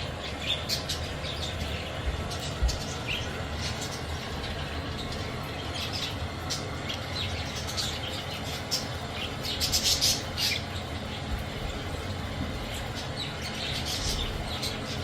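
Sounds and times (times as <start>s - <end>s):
budgerigars chirping and chattering: 0.0s - 15.0s.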